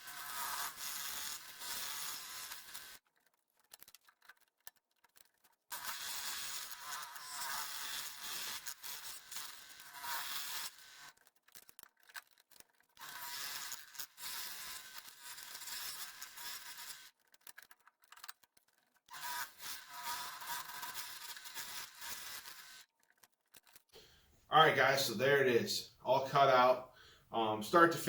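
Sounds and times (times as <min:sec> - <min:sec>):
scroll saw cutting wood: 0:00.0 - 0:03.0, 0:05.7 - 0:11.2, 0:13.0 - 0:17.2, 0:19.1 - 0:22.9.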